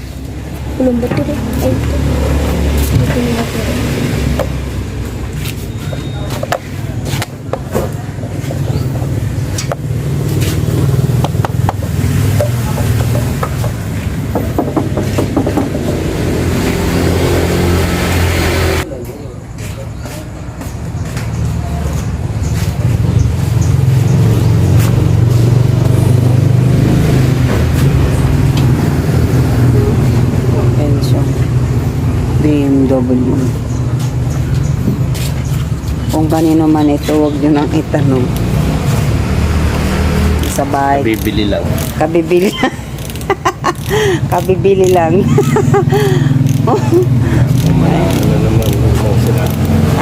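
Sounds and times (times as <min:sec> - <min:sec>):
engine low drone: 0:00.0 - 0:20.2, 0:20.8 - 0:50.0.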